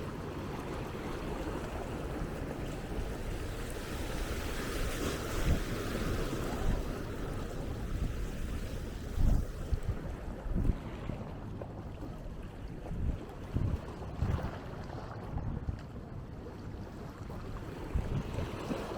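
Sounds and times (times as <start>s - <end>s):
small waves washing on sand: 0.0s - 11.4s
wind on microphone: 0.0s - 16.4s, 17.1s - 18.9s.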